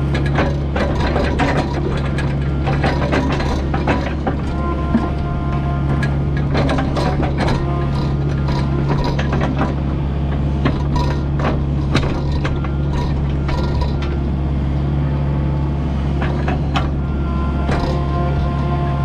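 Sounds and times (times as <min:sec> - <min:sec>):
excavator diesel engine running: 0:00.0 - 0:19.0
metallic clanks from bucket: 0:00.1 - 0:05.3, 0:05.9 - 0:14.2, 0:16.2 - 0:17.0.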